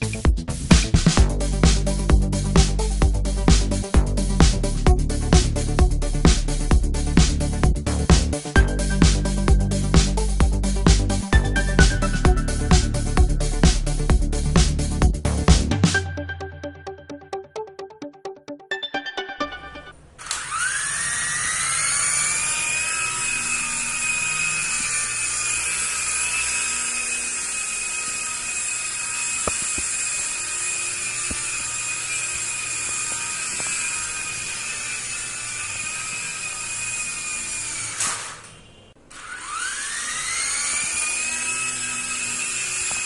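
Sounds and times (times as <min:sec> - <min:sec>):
toy helicopter motors whining: 0:20.2 - 0:43.0.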